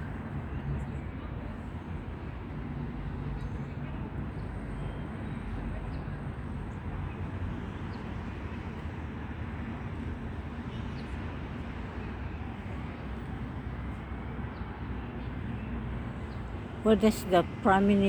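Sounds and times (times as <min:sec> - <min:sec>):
traffic rumble: 0:08.6 - 0:18.0.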